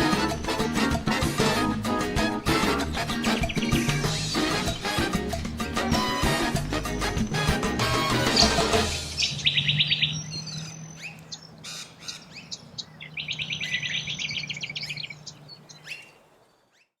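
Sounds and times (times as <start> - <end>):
birds chirping: 0.0 - 17.0
bird trills: 2.6 - 4.9, 6.9 - 17.0.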